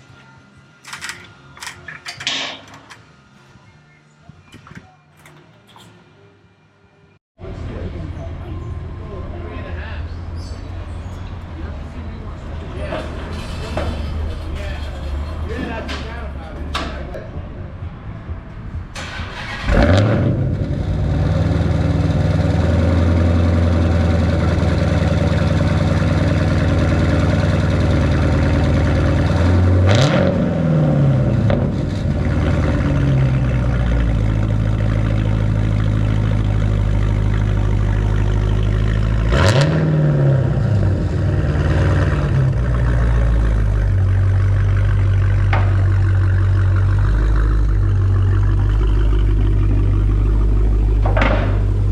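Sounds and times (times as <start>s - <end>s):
loud car engine starting and revving: 18.9s - 51.9s.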